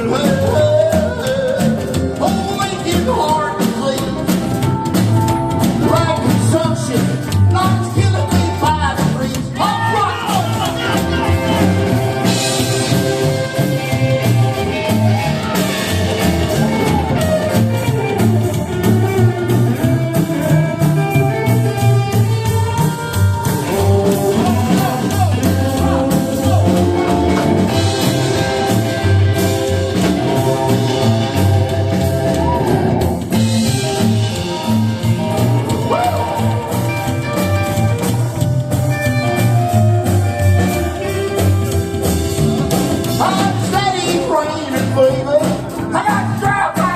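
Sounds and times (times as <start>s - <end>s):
person singing: 0.0s - 4.4s, 5.8s - 13.8s, 22.8s - 29.0s, 35.6s - 37.1s, 43.2s - 46.9s
country band playing live: 0.0s - 46.9s.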